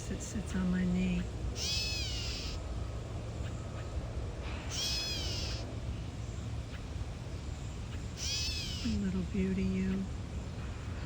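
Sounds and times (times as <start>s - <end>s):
catbird mew call: 1.6s - 2.6s, 4.7s - 5.7s, 8.2s - 9.0s.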